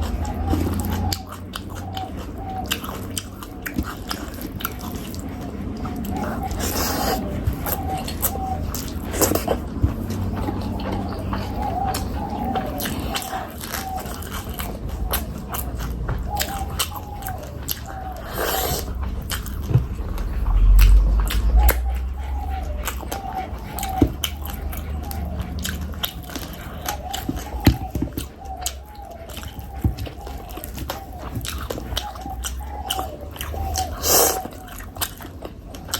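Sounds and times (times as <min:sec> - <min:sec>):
wet chewing and smacking: 0:00.0 - 0:35.9.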